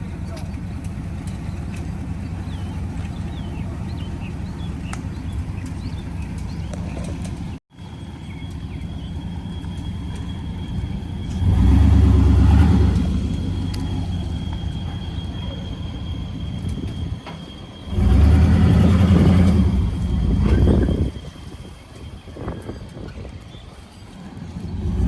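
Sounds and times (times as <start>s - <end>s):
birds chirping: 0.0s - 12.1s
vehicle engine rumbling: 0.0s - 25.0s.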